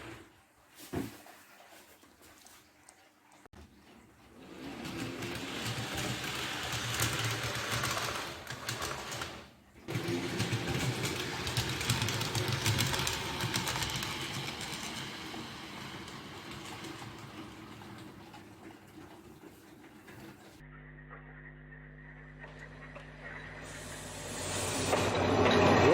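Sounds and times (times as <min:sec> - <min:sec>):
wheels clicking on track: 0:04.4 - 0:20.6, 0:24.6 - 0:25.9
model train motor hum: 0:04.6 - 0:17.9.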